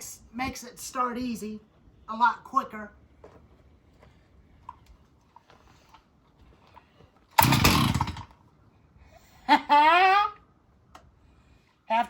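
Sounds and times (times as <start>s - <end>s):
chainsaw pull clicks: 7.4s - 8.3s
chainsaw engine firing burst: 7.4s - 8.4s.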